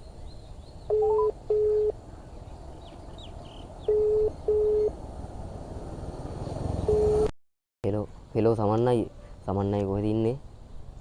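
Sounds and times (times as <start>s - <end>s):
phone ringback tone beeps: 0.9s - 2.0s, 3.9s - 5.0s, 6.9s - 7.3s.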